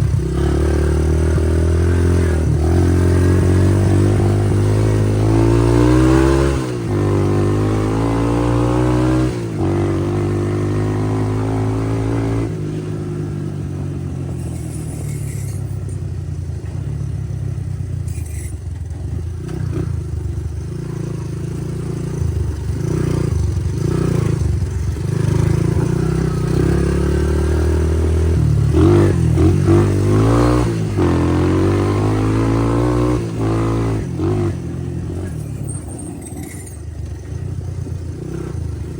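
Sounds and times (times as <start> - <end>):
engine revving: 0.0 - 16.0, 21.9 - 36.9.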